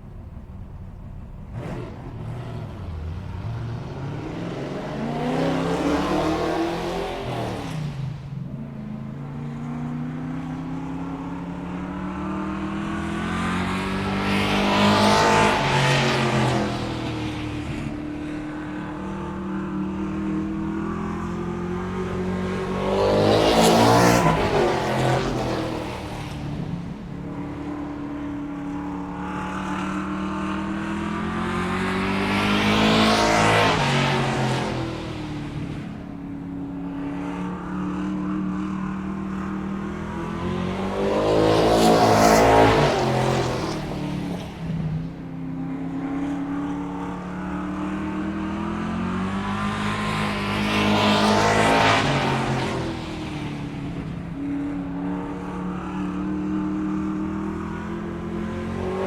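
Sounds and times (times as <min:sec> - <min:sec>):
cars driving past at speed: 0:00.0 - 0:59.0.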